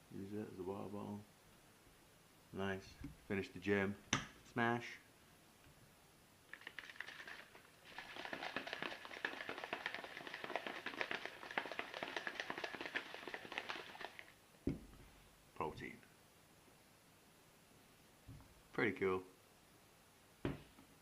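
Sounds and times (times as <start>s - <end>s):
shaker bottle rattling: 6.5s - 14.4s
thump: 14.6s - 15.0s, 20.4s - 20.7s.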